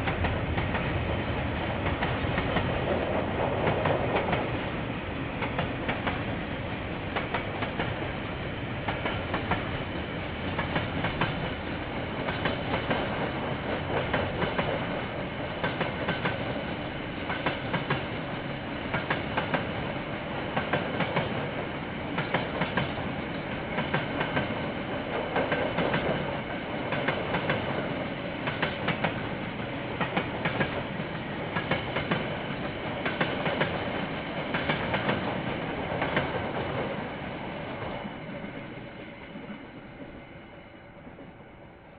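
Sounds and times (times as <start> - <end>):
train wheels clacking over rail joints: 10.5 - 11.6, 12.2 - 16.6, 17.3 - 18.2, 20.5 - 29.3, 29.9 - 36.9.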